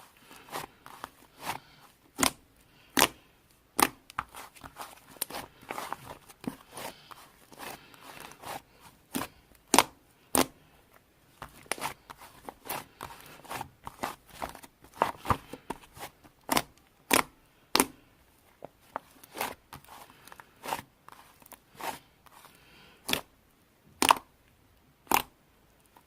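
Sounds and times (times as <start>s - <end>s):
slime clicking and popping: 24.0s - 24.2s.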